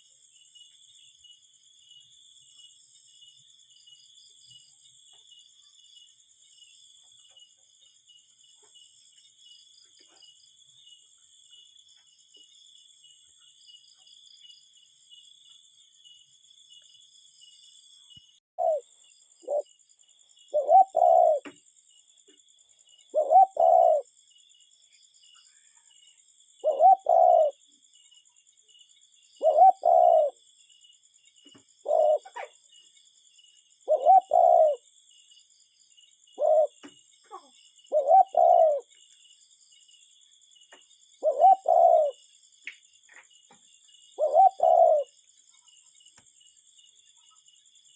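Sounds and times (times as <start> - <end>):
insects trilling: 0.0 - 47.9
cuckoo calling: 18.6 - 19.6, 20.5 - 21.6, 23.1 - 24.1, 26.6 - 27.6, 29.4 - 30.4, 31.8 - 32.5, 33.9 - 34.8, 36.4 - 38.9, 41.2 - 42.2, 44.2 - 45.1.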